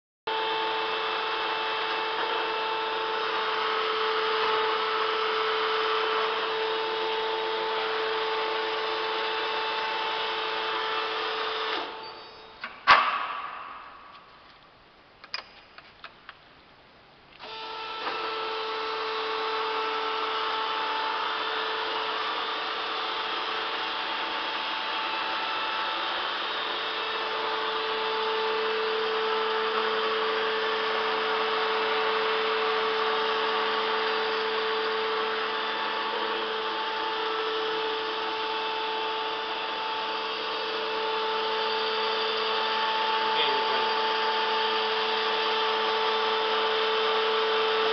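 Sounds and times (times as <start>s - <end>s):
lathe running with a hum: 0.3s - 14.3s, 17.4s - 47.9s
sharp clack: 12.6s - 16.2s.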